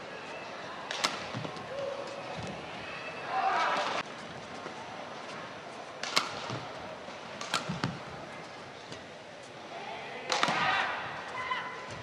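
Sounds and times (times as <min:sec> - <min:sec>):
arena crowd hum: 0:00.0 - 0:12.0
racket striking shuttlecock: 0:06.0 - 0:06.6, 0:07.4 - 0:08.0.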